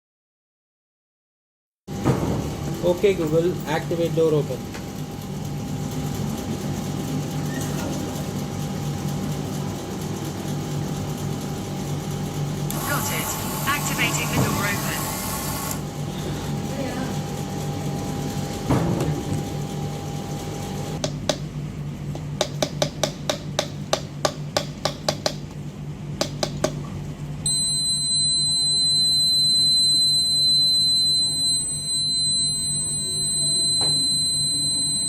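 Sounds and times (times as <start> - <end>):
electronic buzzer tone: 27.5 - 35.0.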